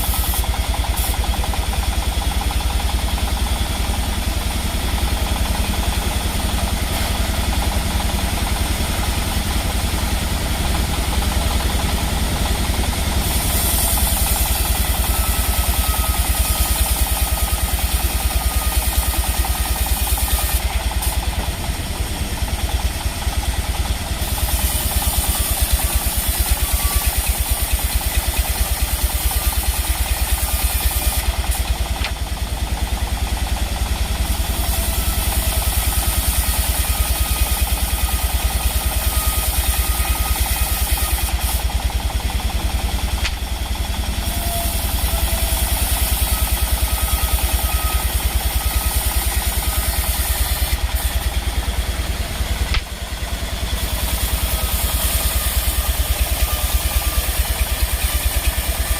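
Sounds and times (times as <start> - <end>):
sawmill engine running: 0.0 - 58.9.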